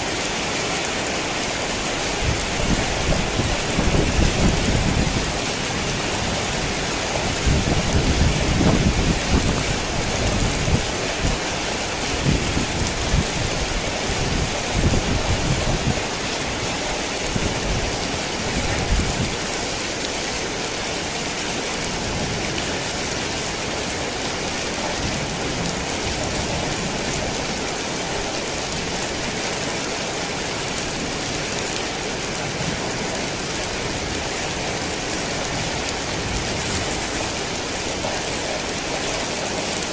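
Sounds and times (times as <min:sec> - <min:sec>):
heavy rain falling: 0:00.0 - 0:39.9
rolling thunder rumble: 0:02.3 - 0:11.0.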